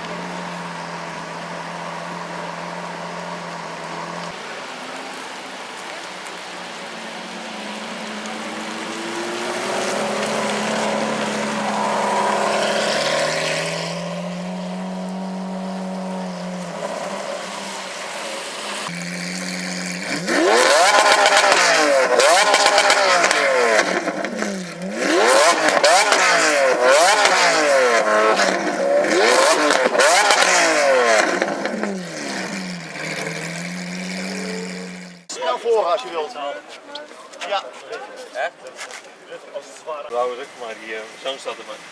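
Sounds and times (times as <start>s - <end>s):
sports car engine revving: 7.2s - 35.3s.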